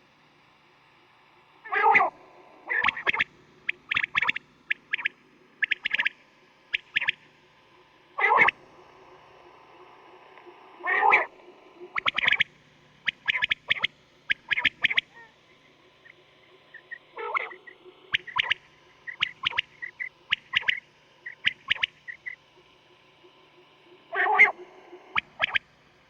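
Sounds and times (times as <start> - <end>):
quail calling: 2.7 - 6.1, 6.7 - 7.2, 8.2 - 8.6, 10.8 - 11.3, 11.9 - 22.4, 24.1 - 25.6.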